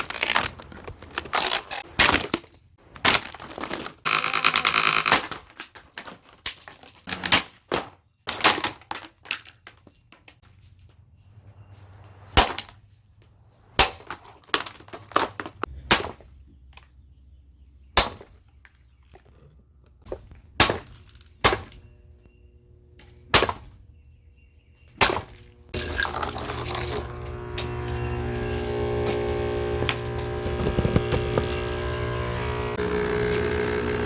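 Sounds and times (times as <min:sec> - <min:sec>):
plastic fan being smashed: 0:00.0 - 0:09.8, 0:13.8 - 0:16.3, 0:25.0 - 0:25.4
loud steady humming noise: 0:24.8 - 0:34.0.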